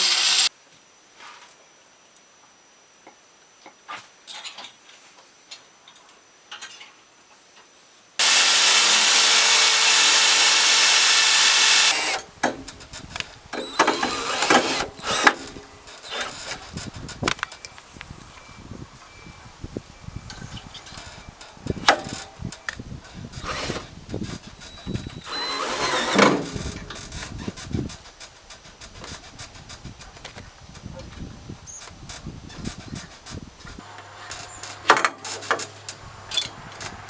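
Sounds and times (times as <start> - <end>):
power tool running: 0.0 - 0.5, 8.2 - 13.0, 13.6 - 16.6, 23.3 - 24.0, 25.0 - 27.3
knocks and clatter of parts: 4.3 - 7.0, 11.8 - 17.8, 20.3 - 37.0.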